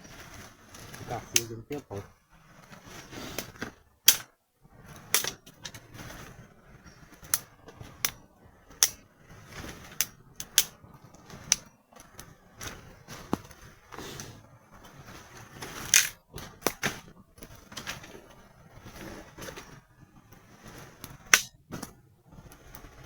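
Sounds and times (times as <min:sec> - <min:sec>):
campfire crackling and popping: 0:00.0 - 0:23.0
faint hiss of fire: 0:00.0 - 0:23.0.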